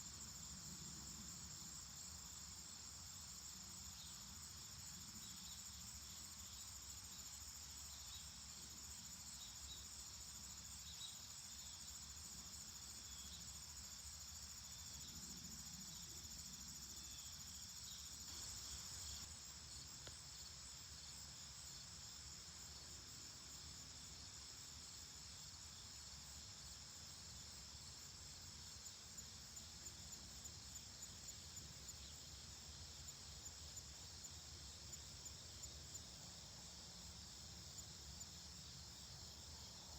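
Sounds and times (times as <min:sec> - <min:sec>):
crickets and insects trilling: 0:00.0 - 0:22.9.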